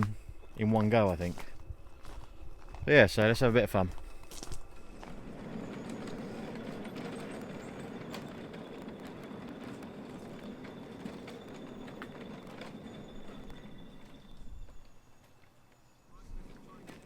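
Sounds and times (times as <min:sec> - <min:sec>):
model train wheels rumbling on rails: 0:03.1 - 0:17.0
sharp clicks of wheels: 0:04.3 - 0:15.8.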